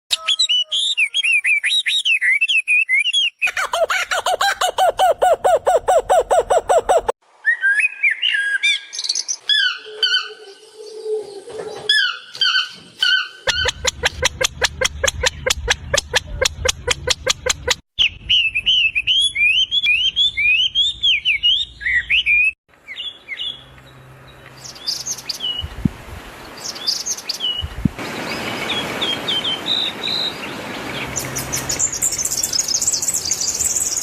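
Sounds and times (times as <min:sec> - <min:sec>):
birds warbling: 0:03.4 - 0:07.1, 0:12.0 - 0:18.4
bird repeating fast notes: 0:04.2 - 0:07.1, 0:13.5 - 0:17.8
bird whistling: 0:04.2 - 0:08.8, 0:13.5 - 0:23.1.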